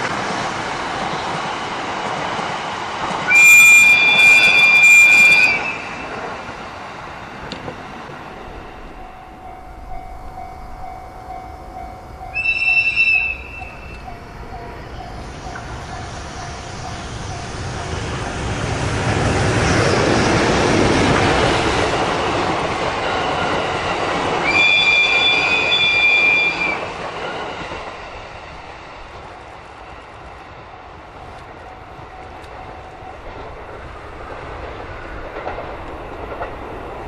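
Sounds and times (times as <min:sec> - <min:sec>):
train rumbling past on rails: 0:00.0 - 0:37.0
high steady tone: 0:08.2 - 0:18.4.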